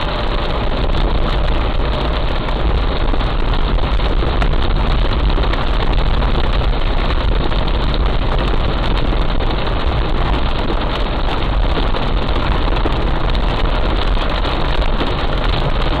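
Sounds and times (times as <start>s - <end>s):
deep continuous rumble: 0.0s - 16.0s
heavy rain pouring: 0.0s - 16.0s.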